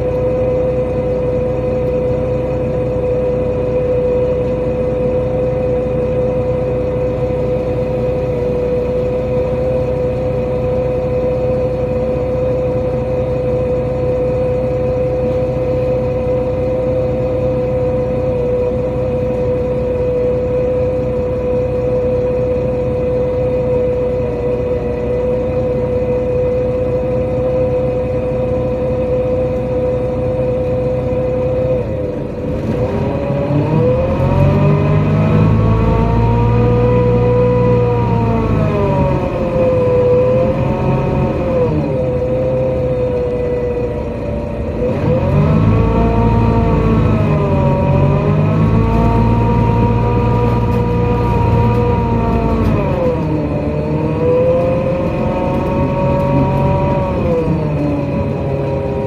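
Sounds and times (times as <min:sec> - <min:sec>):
bus engine accelerating: 0:00.0 - 0:59.0
drivetrain whine: 0:00.0 - 0:59.0.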